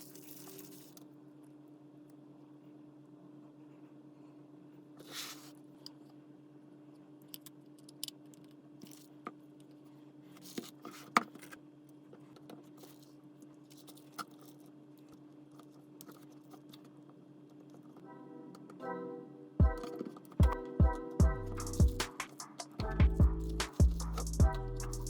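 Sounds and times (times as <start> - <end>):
steady low hum: 19.5 - 25.0.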